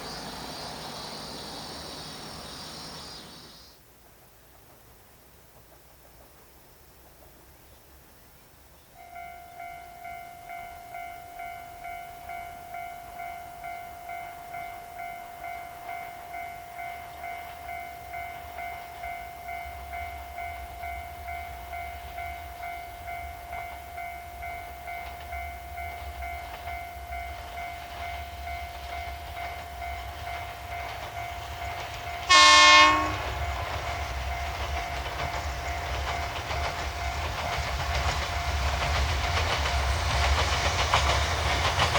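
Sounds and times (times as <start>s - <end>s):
rail vehicle rumble: 0.0s - 41.9s
level-crossing warning bell: 9.0s - 40.5s
train horn blast: 32.1s - 33.6s.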